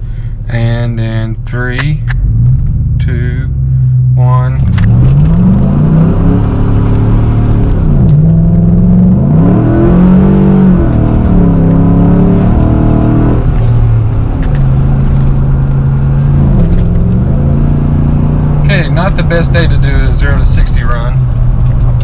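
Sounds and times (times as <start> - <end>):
pickup engine accelerating hard: 4.6 - 22.0.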